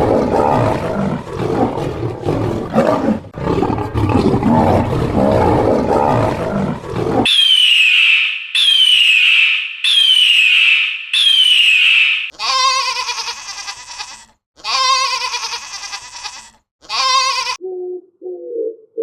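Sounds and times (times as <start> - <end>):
deep rough animal roar: 0.0 - 7.3
high falling animal calls: 7.2 - 14.1
wavering bleat: 12.3 - 17.6.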